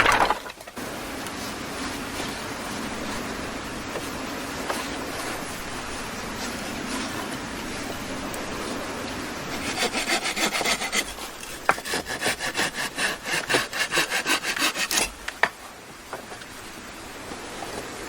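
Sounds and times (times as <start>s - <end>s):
hand saw cutting wood: 9.4s - 15.6s.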